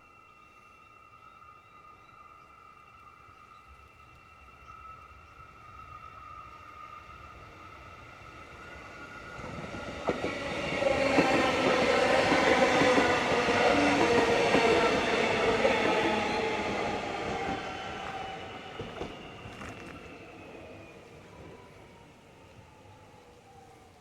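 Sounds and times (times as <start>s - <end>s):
electric train whine: 0.0s - 24.0s
train wheels on rails: 7.4s - 24.0s
train clicks: 9.4s - 20.2s.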